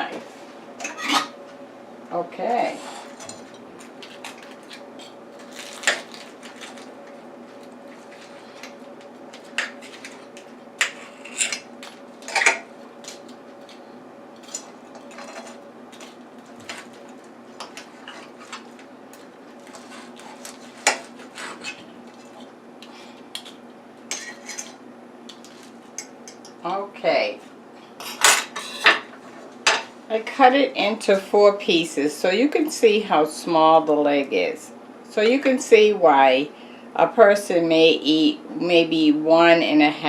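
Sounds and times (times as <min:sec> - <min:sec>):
faint steady hum: 0:00.0 - 0:40.0
cutlery scraping on a plate: 0:00.8 - 0:01.3, 0:24.1 - 0:24.8, 0:28.0 - 0:29.0.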